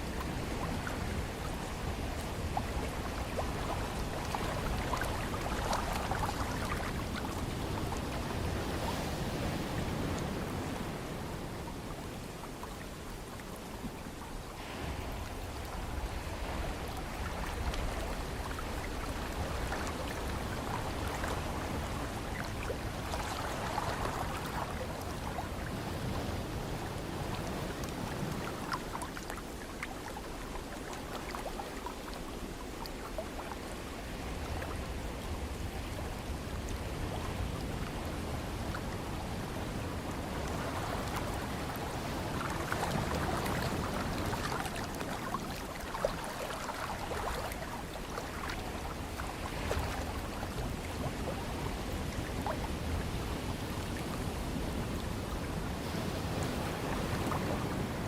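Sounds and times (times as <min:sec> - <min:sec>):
ocean surf: 0:00.0 - 0:58.0
wind: 0:00.0 - 0:58.0.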